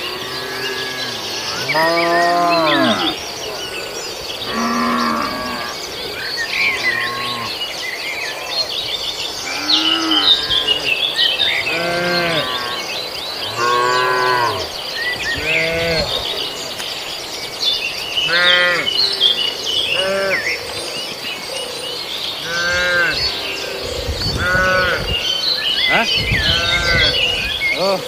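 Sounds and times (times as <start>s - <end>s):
birds chirping: 0.0s - 28.0s
cattle mooing: 0.1s - 3.2s, 15.4s - 16.2s, 18.3s - 18.9s, 24.3s - 25.2s, 26.0s - 27.9s.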